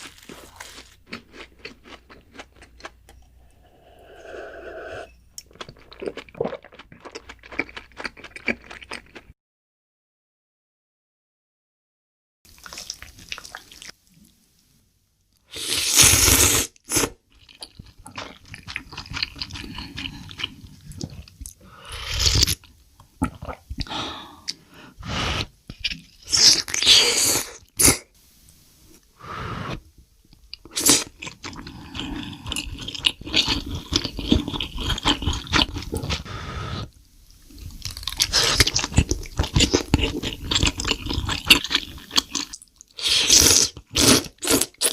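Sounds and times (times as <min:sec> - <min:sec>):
crunchy bites and chewing: 0:00.0 - 0:03.0.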